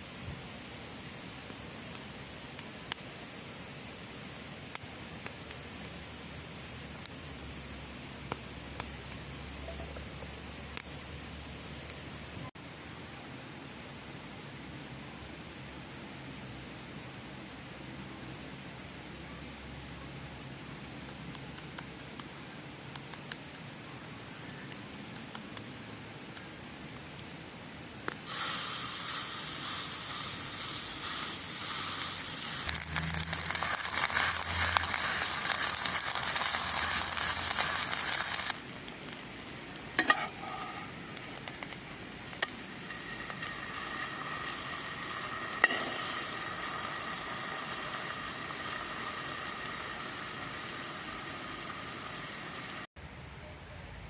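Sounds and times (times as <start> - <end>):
food sizzling in a pan: 28.2 - 52.9.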